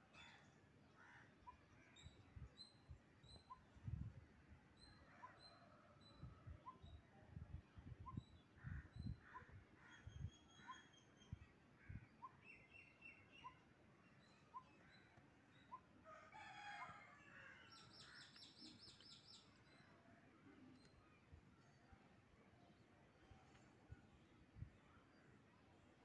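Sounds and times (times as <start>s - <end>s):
birds chirping and trilling: 17.6s - 20.0s.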